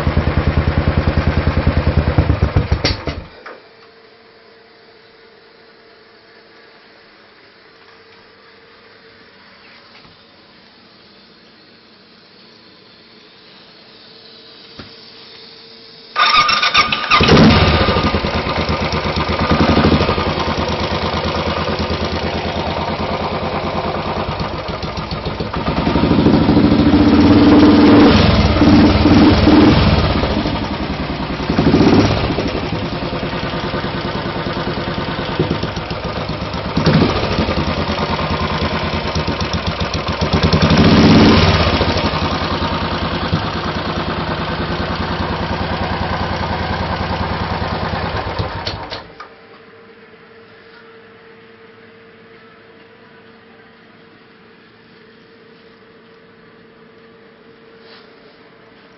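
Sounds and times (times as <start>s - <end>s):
motorcycle engine revving: 0.0s - 3.3s, 16.2s - 48.9s
motorcycle engine starting and idling: 0.0s - 3.6s, 16.1s - 49.3s.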